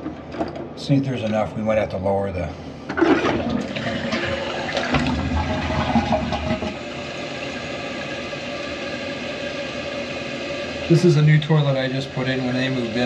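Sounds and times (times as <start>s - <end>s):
toilet flushing: 2.9s - 13.0s
toilet tank refilling hiss: 2.9s - 13.0s.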